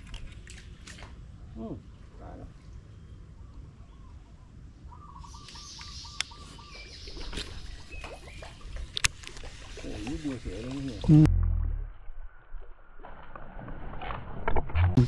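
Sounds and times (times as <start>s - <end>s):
birds calling: 2.2s - 11.2s.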